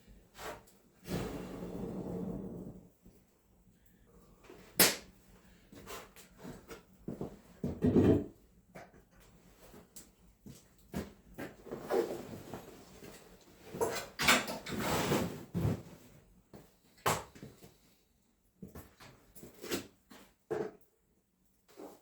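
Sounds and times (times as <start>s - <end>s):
rustling scrape: 14.7s - 16.1s.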